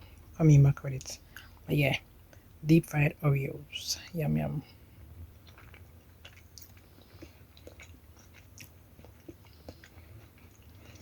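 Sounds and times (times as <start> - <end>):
person chewing: 5.2 - 11.0.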